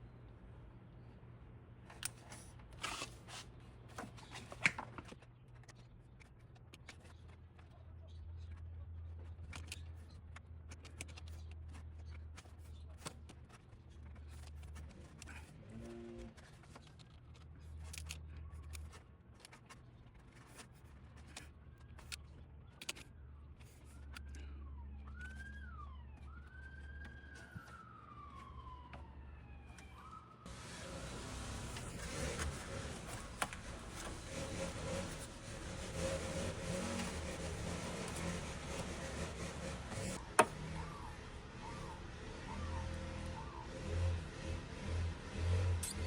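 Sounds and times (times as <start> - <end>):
tools clicking and rustling: 16.4 - 24.4
faint wailing siren tone: 23.2 - 32.3, 36.0 - 45.6.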